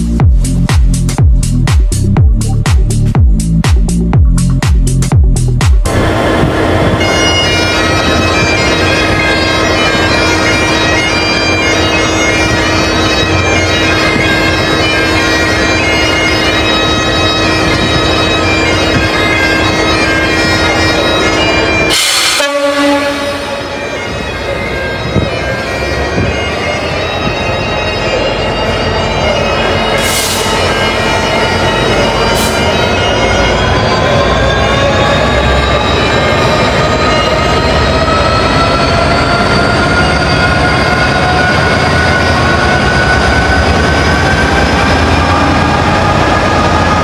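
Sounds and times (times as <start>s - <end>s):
low rumble: 0.0s - 8.4s
bagpipes playing: 5.9s - 47.0s.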